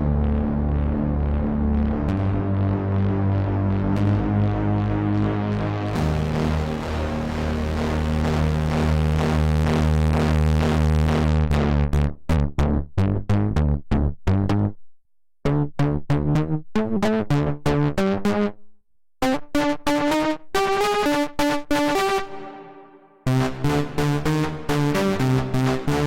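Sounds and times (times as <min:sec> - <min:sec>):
synthesizer staccato notes: 0:00.0 - 0:12.2, 0:19.2 - 0:26.0
synthesizer buzzy held note: 0:01.4 - 0:10.1.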